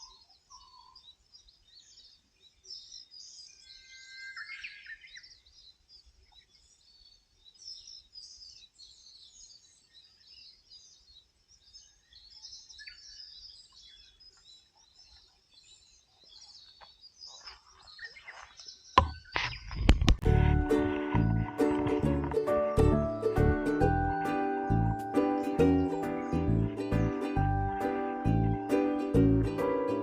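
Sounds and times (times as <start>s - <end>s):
songbirds chirping and twittering: 0.0s - 30.0s
loud music: 20.3s - 30.0s.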